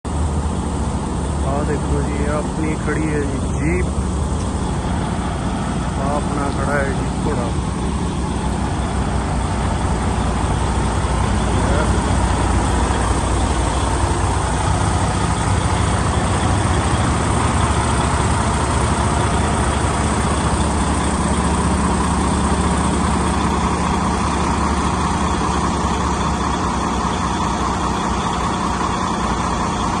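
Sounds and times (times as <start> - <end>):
truck engine running: 0.0 - 30.0.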